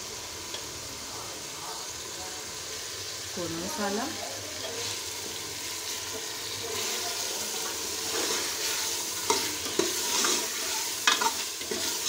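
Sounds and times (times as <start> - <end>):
chicken sizzling in a pot: 0.0 - 12.0
ladle scraping metal pot: 8.1 - 12.0.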